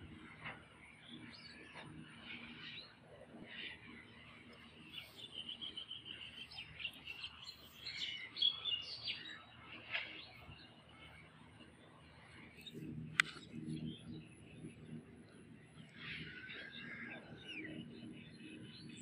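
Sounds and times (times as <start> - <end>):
small birds chirping: 0.0 - 19.0
sharp click: 13.1 - 13.5.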